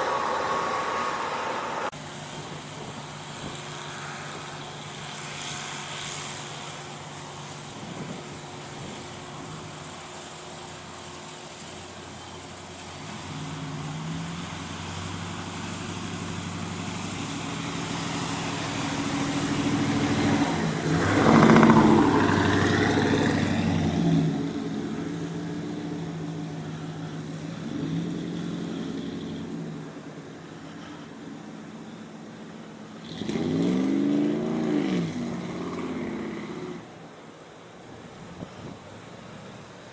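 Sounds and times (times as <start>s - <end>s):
vehicle engine passing by: 0.0s - 31.1s, 33.0s - 37.3s.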